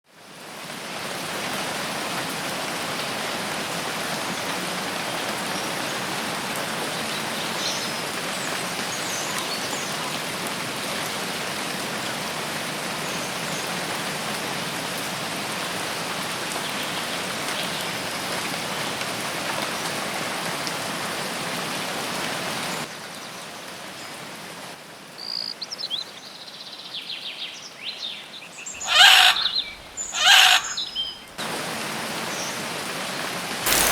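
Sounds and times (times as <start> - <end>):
heavy rain falling: 0.3 - 22.9, 29.8 - 33.9
birds chirping: 27.2 - 31.4, 33.7 - 33.9.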